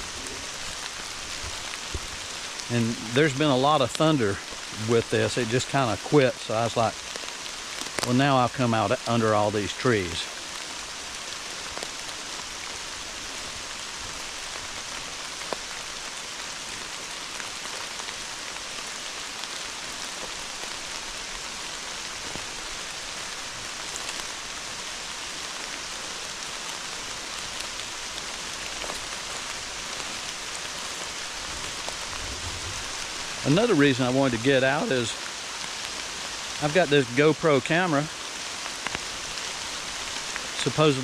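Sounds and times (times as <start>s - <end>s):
raindrop hits: 0.0s - 10.2s
hard rain through trees: 0.0s - 41.0s.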